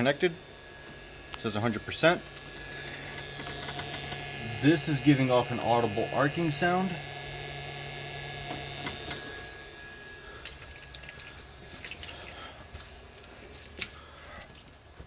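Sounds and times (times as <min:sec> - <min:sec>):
battery charger electrical hum: 0:00.0 - 0:15.0
sharp clicks and crackles: 0:02.3 - 0:04.4.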